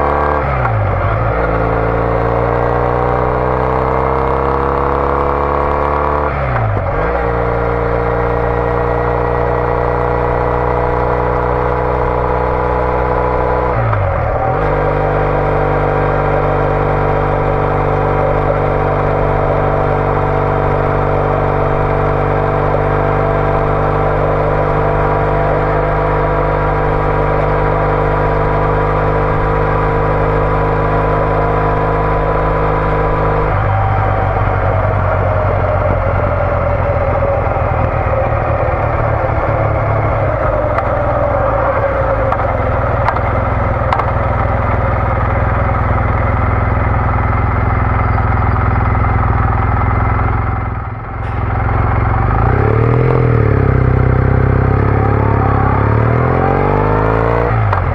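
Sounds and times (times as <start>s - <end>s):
motorcycle engine cruising: 0.0s - 57.9s.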